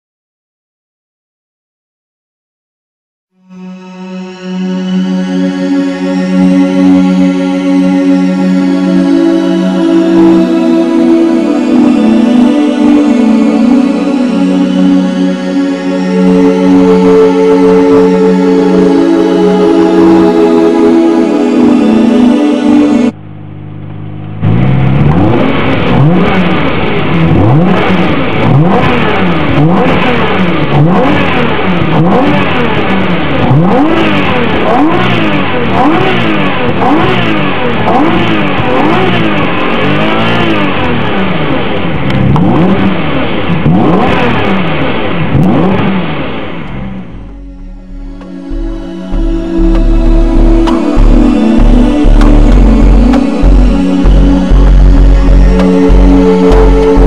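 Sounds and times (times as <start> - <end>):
car engine revving: 3.5 - 57.0.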